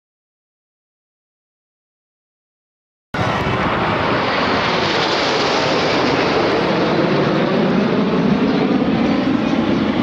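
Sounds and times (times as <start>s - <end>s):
jets flying low past: 3.2s - 10.0s.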